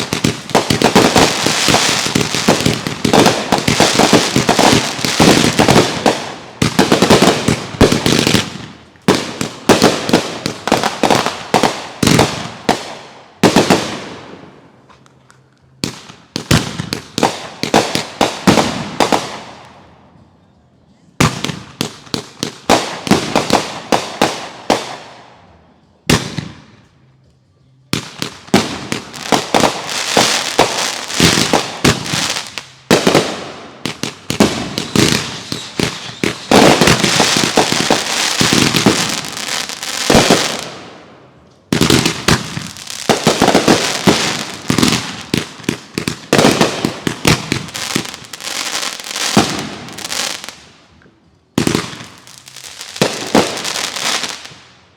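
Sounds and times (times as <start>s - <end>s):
fireworks bangs: 0.0s - 14.5s, 27.9s - 41.0s, 41.6s - 50.6s, 51.6s - 54.7s.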